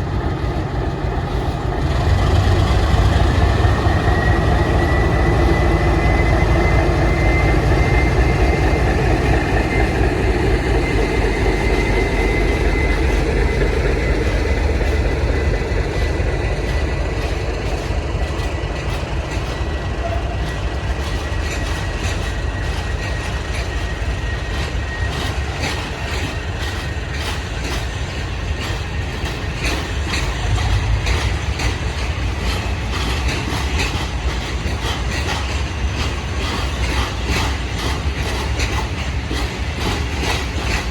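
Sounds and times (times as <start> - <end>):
train rumbling past: 0.0 - 40.9
high squeal: 3.7 - 15.1
wheels clicking over rail joints: 9.2 - 40.9.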